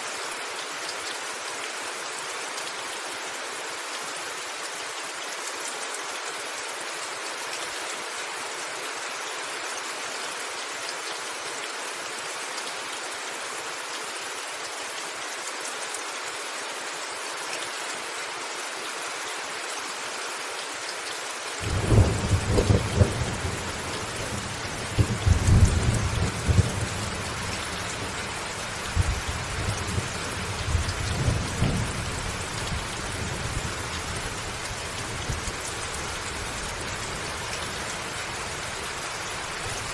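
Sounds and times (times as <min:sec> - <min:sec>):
rain on a rooftop: 0:00.0 - 0:39.9
thunder rumbling: 0:21.6 - 0:28.3.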